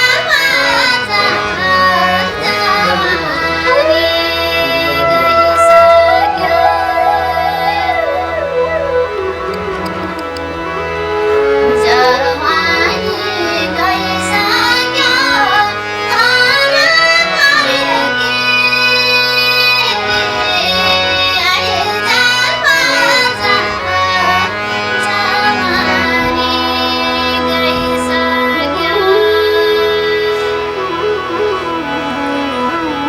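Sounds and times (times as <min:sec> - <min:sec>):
instrumental accompaniment: 0:00.0 - 0:33.0
woman singing folk song: 0:11.6 - 0:30.5.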